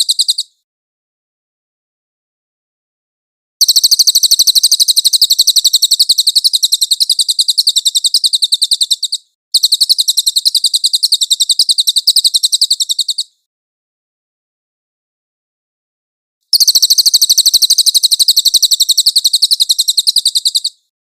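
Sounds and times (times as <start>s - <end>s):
songbird trilling high chirps: 0.0s - 0.6s, 3.6s - 13.4s, 16.5s - 20.9s.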